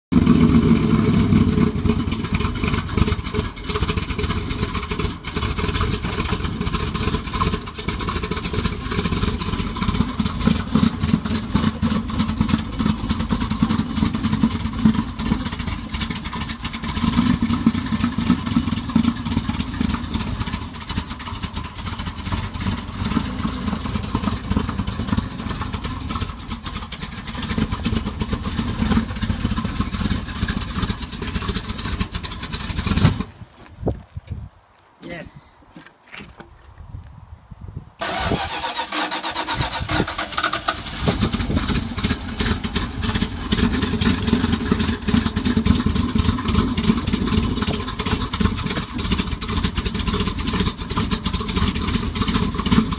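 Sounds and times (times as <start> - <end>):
vee eight engine lopey idle: 0.1 - 33.3, 38.0 - 52.9.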